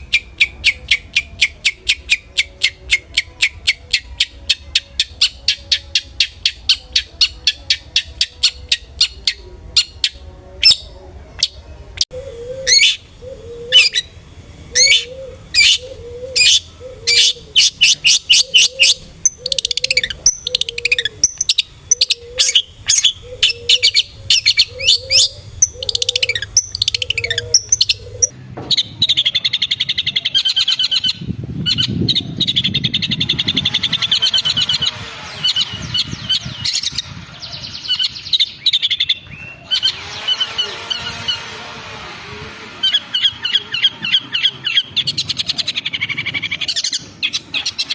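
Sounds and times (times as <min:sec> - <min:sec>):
bird calls sharp repeated notes: 0:00.0 - 0:42.2.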